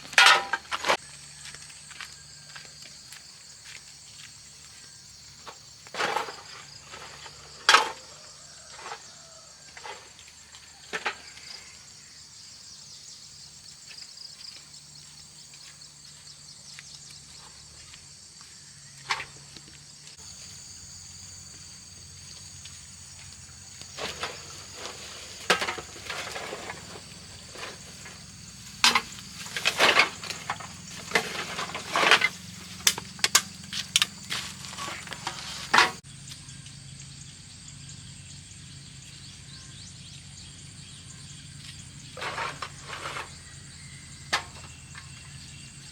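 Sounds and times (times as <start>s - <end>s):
insects droning: 0.0s - 45.9s
sharp clatters and knocks: 23.9s - 36.0s.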